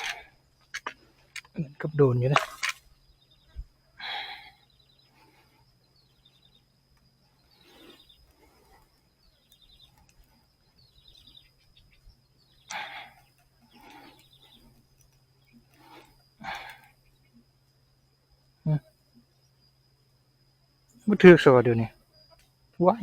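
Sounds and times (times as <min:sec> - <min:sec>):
faint animal calls: 0:03.4 - 0:06.6, 0:11.1 - 0:17.4.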